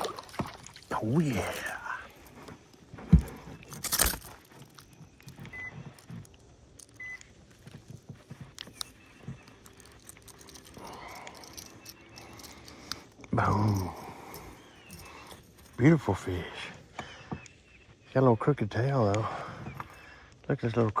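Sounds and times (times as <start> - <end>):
fishing gear clicking and rattling: 0.0 - 16.4.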